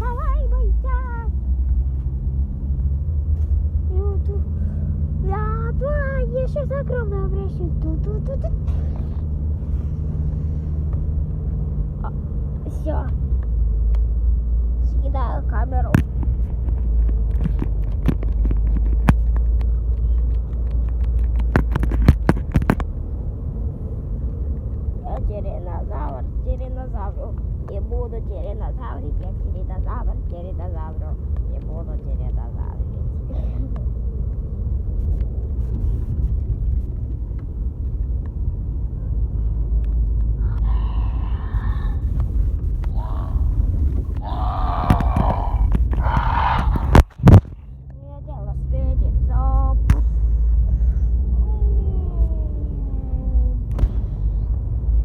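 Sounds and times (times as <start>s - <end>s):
car rumbling inside cabin: 0.0s - 55.0s
person making wordless sounds: 40.4s - 47.5s.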